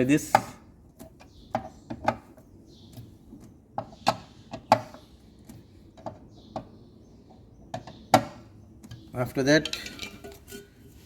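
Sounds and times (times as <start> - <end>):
tools and metal parts clicking: 8.8 - 10.7.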